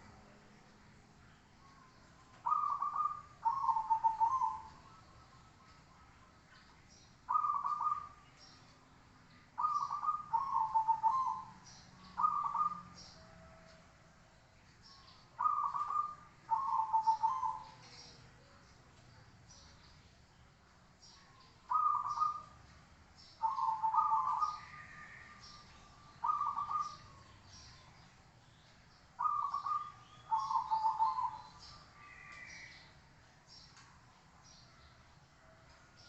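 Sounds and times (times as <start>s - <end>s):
dove cooing: 2.4s - 4.8s, 7.3s - 8.2s, 9.6s - 11.5s, 12.2s - 13.0s, 15.4s - 18.0s, 21.7s - 22.6s, 23.4s - 25.4s, 26.2s - 27.2s, 29.2s - 32.5s.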